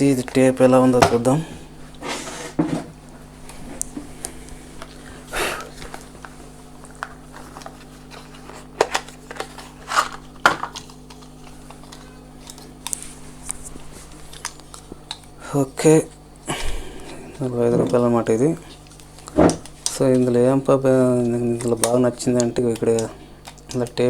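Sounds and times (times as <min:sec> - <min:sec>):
steady low hum: 0:00.0 - 0:24.0
packaging rustling: 0:01.2 - 0:15.4
plastic clicks: 0:21.2 - 0:24.0.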